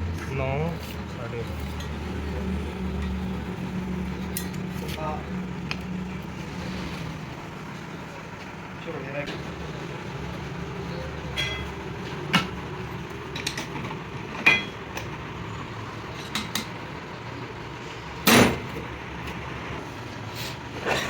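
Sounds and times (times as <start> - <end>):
steady low hum: 0.0 - 19.1
metal clanks and knocks: 11.3 - 12.6, 13.3 - 15.2, 18.2 - 18.9.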